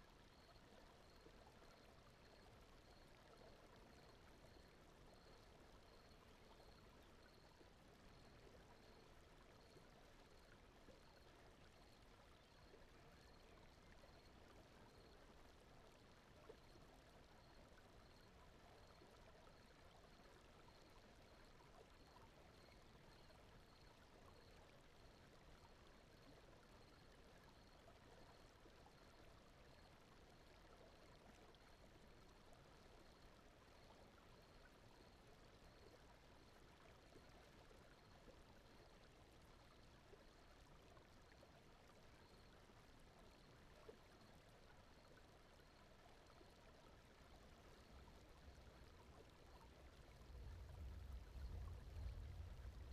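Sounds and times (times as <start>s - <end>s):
faint steady rushing noise: 46.4s - 52.9s.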